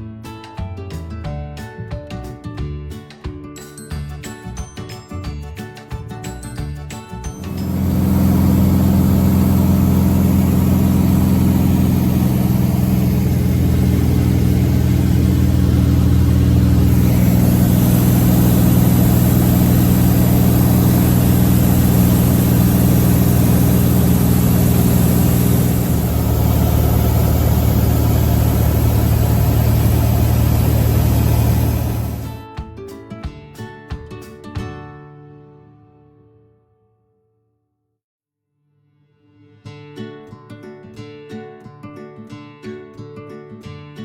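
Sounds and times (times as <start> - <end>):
air hiss: 7.4 - 32.4
light aircraft engine droning: 7.4 - 32.4.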